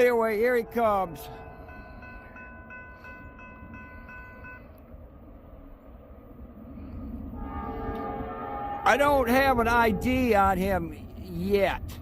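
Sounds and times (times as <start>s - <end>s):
crossing bell dinging: 0.0s - 4.8s
locomotive horn chord: 7.4s - 10.6s.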